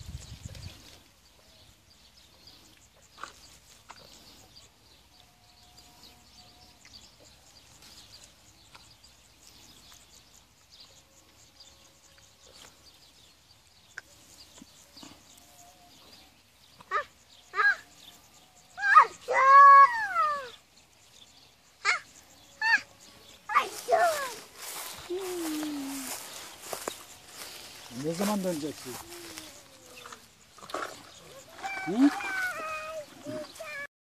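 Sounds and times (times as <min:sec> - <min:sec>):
faint bird chirps: 0:00.0 - 0:30.3, 0:31.0 - 0:33.9.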